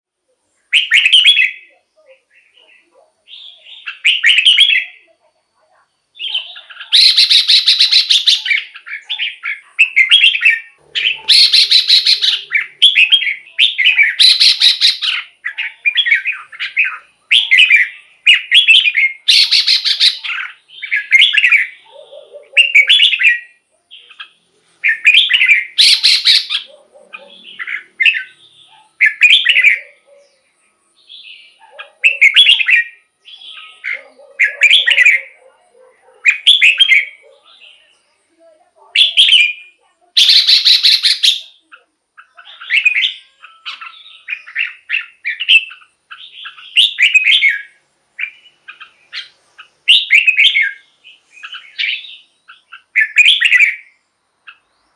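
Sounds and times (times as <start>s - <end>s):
bird singing whistled phrases: 0.7s - 1.7s, 3.3s - 5.1s, 6.2s - 21.8s, 22.6s - 26.7s, 29.0s - 30.0s, 31.1s - 35.4s, 39.0s - 50.8s, 51.4s - 53.9s.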